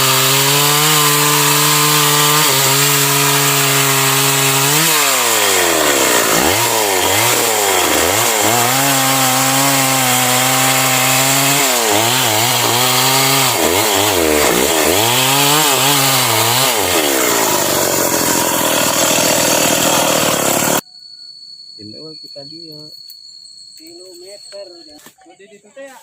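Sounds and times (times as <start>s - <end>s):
chainsaw cutting wood: 0.0s - 20.8s.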